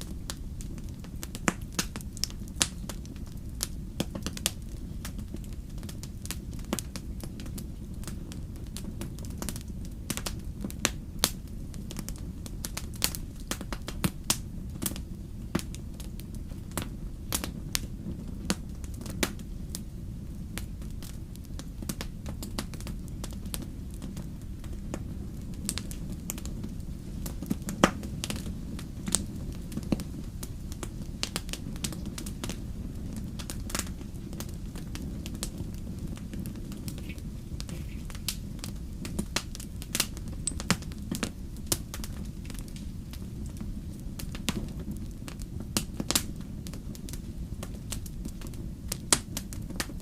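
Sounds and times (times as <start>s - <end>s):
steady low rumble: 0.0s - 50.0s
wood fire crackling and popping: 0.0s - 50.0s.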